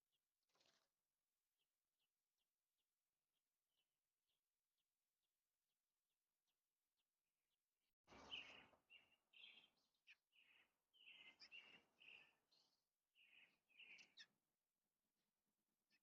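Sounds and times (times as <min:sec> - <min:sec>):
robin singing: 0:08.1 - 0:14.4.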